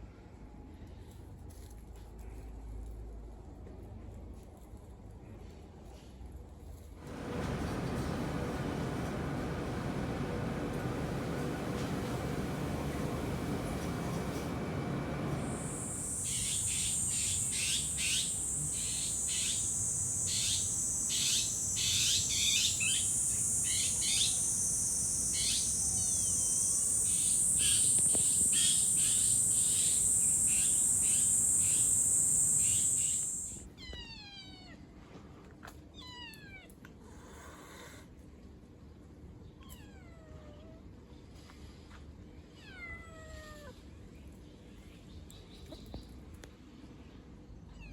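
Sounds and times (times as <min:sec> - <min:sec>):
high-pitched buzz: 0:11.8 - 0:33.6.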